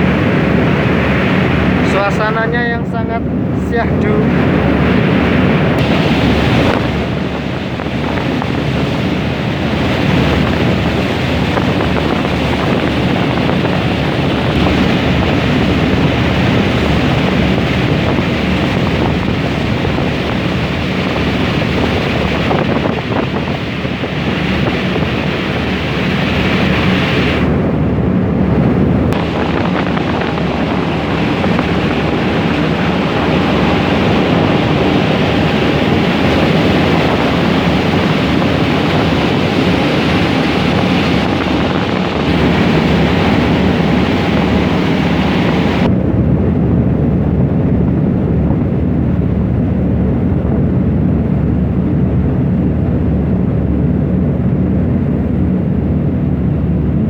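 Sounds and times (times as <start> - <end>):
ferry engine drone: 0.0 - 57.0
wind buffeting microphone: 0.0 - 57.0
rushing water: 4.3 - 27.4, 29.2 - 45.9.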